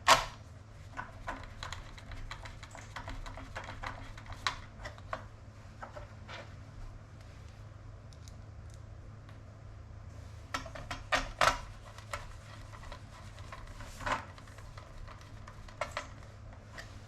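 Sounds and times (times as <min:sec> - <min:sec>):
sharp clicks and knocks of parts: 0:00.0 - 0:00.4, 0:10.5 - 0:16.8
low steady hum: 0:00.0 - 0:17.0.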